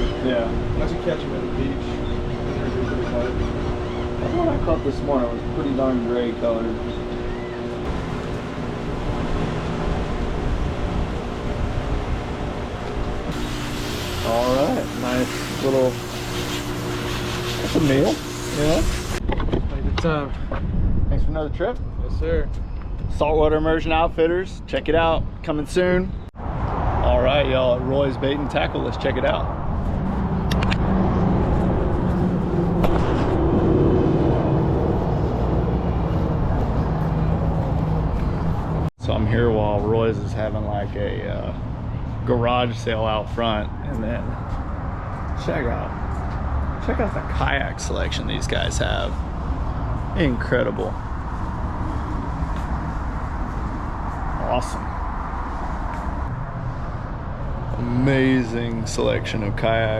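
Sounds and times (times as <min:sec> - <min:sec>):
wind buffeting microphone: 0:19.2 - 0:23.5.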